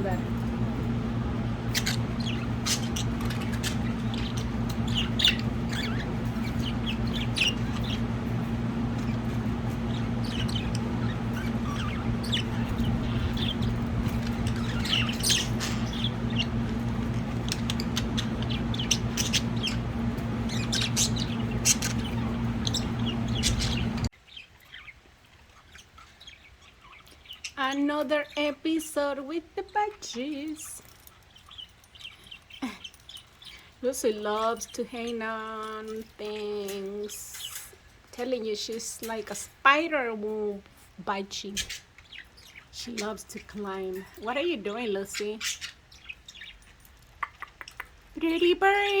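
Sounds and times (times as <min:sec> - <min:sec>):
steady low hum: 0:00.0 - 0:24.1
budgerigars chirping and chattering: 0:00.0 - 0:28.4, 0:29.7 - 0:37.8, 0:41.4 - 0:48.0.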